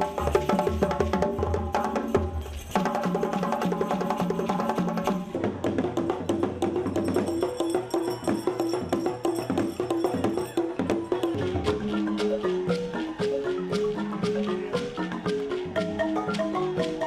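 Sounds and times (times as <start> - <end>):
mallet instrument melody: 6.4 - 17.0.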